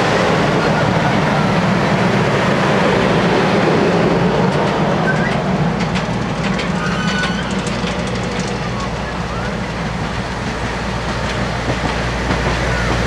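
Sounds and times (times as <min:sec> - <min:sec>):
train cars rumbling past: 0:00.0 - 0:13.0
wheels clicking over rail joints: 0:04.3 - 0:13.0.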